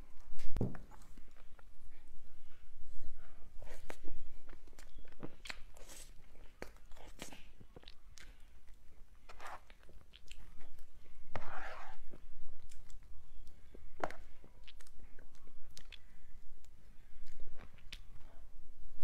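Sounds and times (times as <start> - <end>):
wet chewing and lip smacks: 3.8 - 10.9, 12.6 - 18.2.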